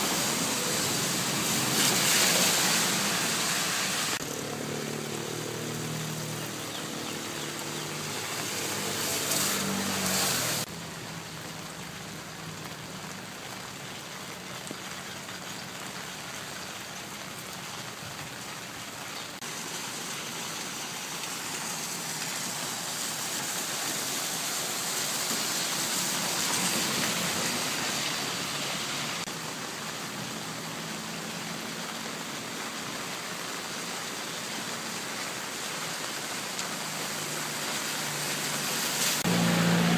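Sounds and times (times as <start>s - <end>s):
vehicle engine humming: 0.0s - 13.6s, 36.8s - 39.9s
heavy rain falling: 0.0s - 39.9s.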